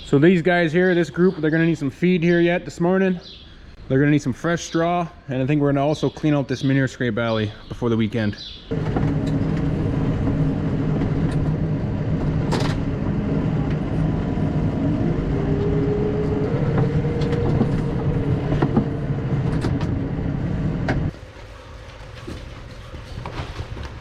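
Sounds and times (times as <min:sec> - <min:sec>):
rising tone: 0:08.7 - 0:21.1
vehicle engine running: 0:08.7 - 0:21.1.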